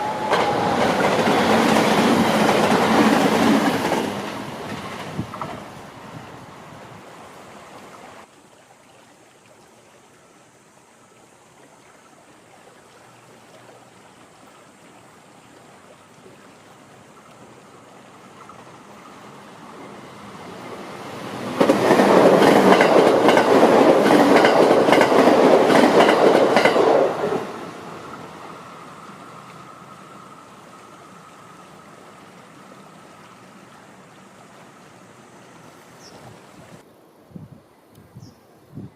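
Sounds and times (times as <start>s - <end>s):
train rumble: 0.0s - 7.0s, 18.4s - 36.8s
wheels clacking over rail joints: 19.7s - 27.5s.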